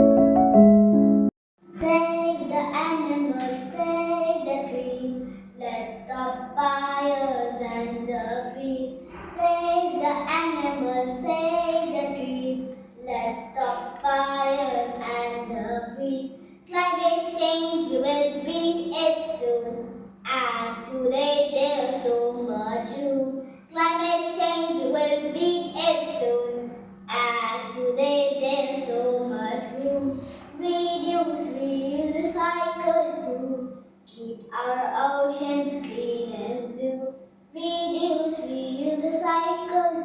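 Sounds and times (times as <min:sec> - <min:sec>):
electric piano chord: 0:00.0 - 0:01.3
steady low hum: 0:01.8 - 0:40.0.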